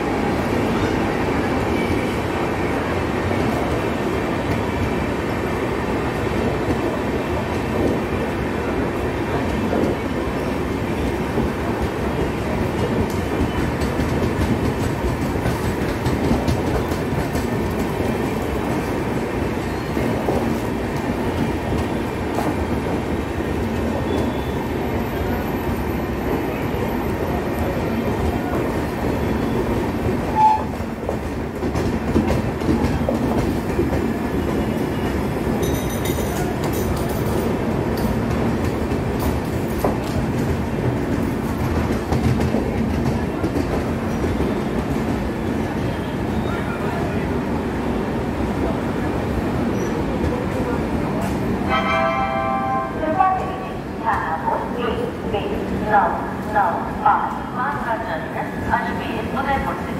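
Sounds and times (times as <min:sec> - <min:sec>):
train coaches rolling rumble: 0:00.0 - 0:59.9
brief high tone: 0:51.7 - 0:53.2.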